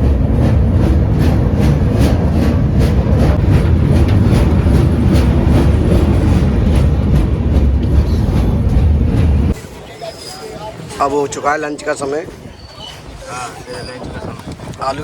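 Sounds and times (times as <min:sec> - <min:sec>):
wheels clattering over rail joints: 0:00.0 - 0:09.6
train rumbling: 0:00.0 - 0:15.0.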